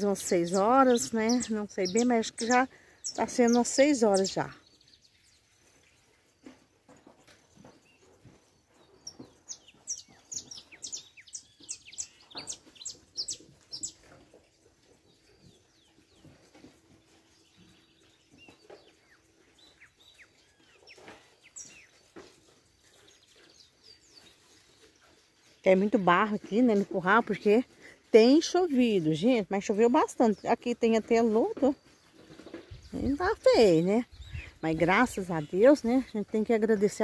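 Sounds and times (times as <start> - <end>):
soft bird calls: 0.0 - 25.7.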